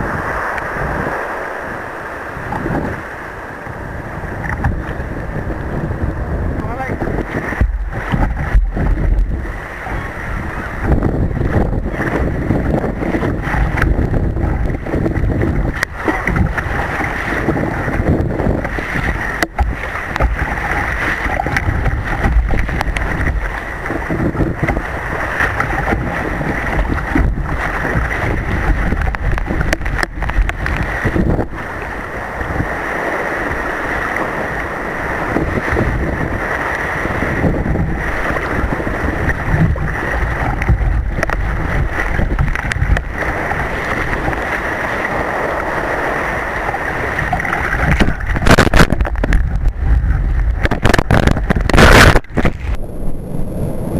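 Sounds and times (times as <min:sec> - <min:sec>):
surf and water rushing: 0:00.0 - 0:53.9
wind buffeting microphone: 0:00.0 - 0:53.9
low rumble: 0:46.6 - 0:53.9.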